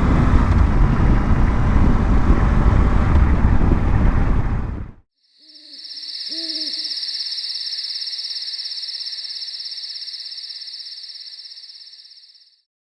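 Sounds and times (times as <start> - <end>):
pulsing insect trill: 5.2 - 12.6
low hoots: 5.5 - 11.3.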